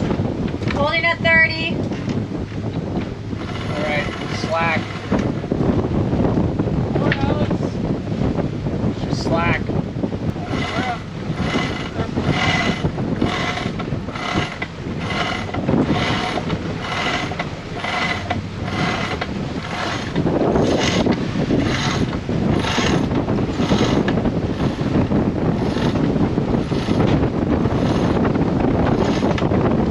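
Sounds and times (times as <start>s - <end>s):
wind noise: 0.0s - 29.9s
winch pawls ratcheting: 3.4s - 5.3s, 10.4s - 24.8s, 25.6s - 28.2s, 28.9s - 29.5s.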